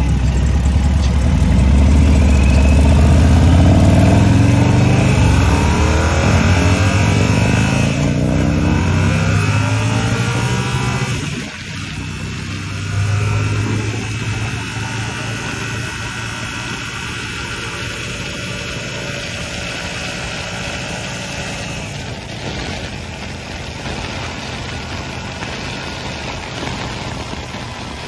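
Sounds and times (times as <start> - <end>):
motorcycle engine running: 0.0 - 28.0
wind rushing over microphone: 1.6 - 28.0.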